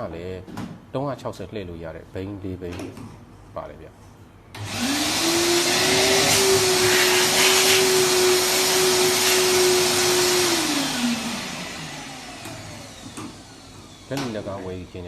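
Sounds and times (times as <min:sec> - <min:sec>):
vacuum motor spinning down: 0:04.6 - 0:14.3
vacuum cleaner motor whine: 0:04.6 - 0:15.0.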